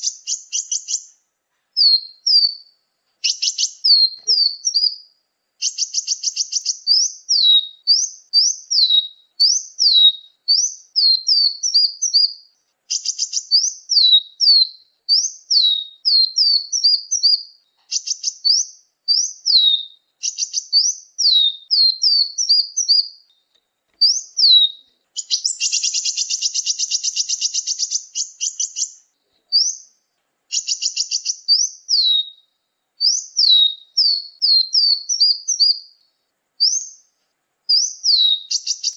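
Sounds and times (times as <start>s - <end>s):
buzzy rattling bird trill: 0.0s - 1.2s, 3.2s - 5.0s, 5.6s - 23.3s, 24.0s - 32.3s, 36.6s - 37.1s, 37.7s - 38.9s
small songbirds chirping: 0.0s - 38.9s.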